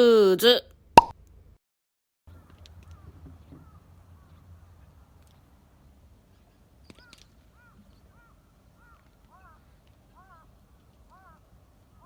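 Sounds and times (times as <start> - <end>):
distant birds calling: 2.3 - 4.4, 6.8 - 12.0.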